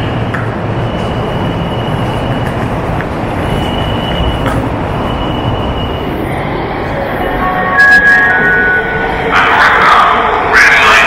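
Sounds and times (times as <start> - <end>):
high wheel squeal: 0.0 - 2.5, 3.3 - 6.5
train rumbling on track: 0.0 - 11.0.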